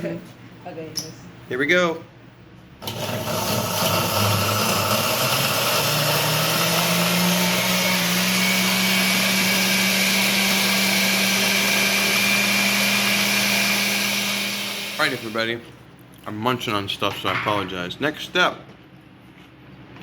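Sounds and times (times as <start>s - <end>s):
electric blender running: 2.8s - 15.5s.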